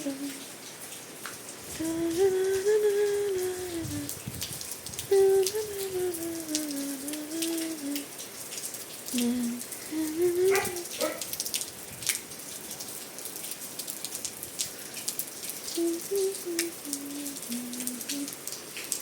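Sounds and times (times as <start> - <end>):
person humming: 0.0 - 0.4, 1.7 - 4.2, 5.1 - 8.1, 9.1 - 11.0, 15.7 - 18.4
rain falling: 0.0 - 19.0
raindrops ticking on hard surface: 0.0 - 19.0.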